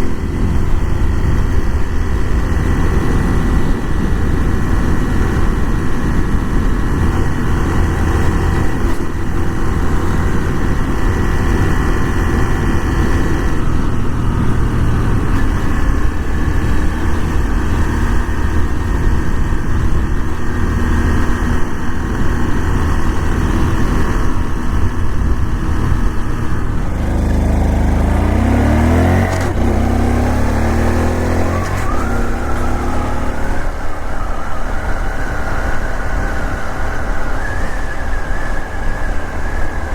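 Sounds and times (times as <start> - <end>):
motorcycle engine accelerating: 0.0 - 39.9
rush of noise: 22.5 - 39.9.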